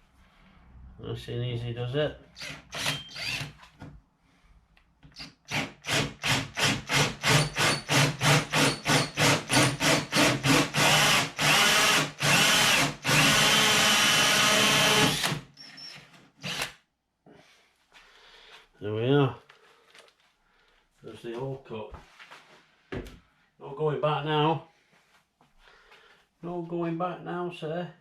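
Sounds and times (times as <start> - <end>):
power drill with hole saw: 2.4 - 3.6, 5.2 - 16.8.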